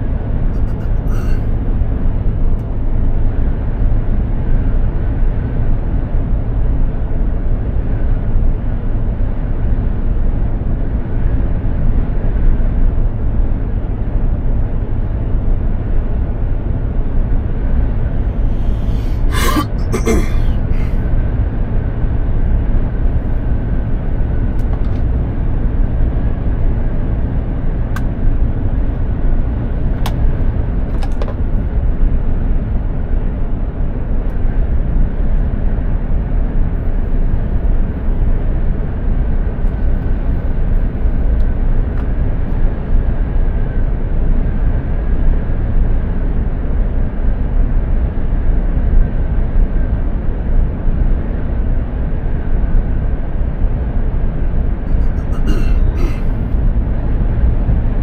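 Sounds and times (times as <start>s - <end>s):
truck engine and road drone: 0.0s - 58.0s
faint high tone: 0.6s - 1.5s.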